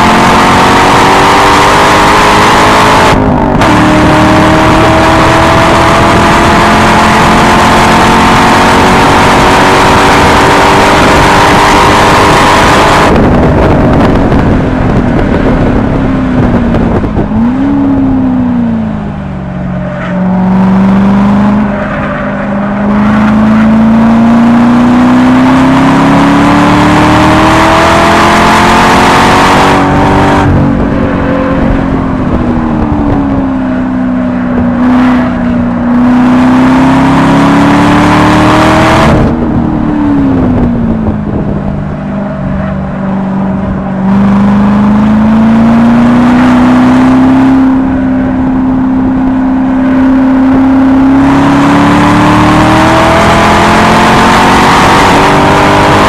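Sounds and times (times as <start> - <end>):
car engine revving at high rpm: 0.0 - 56.0
wind rush: 0.0 - 56.0.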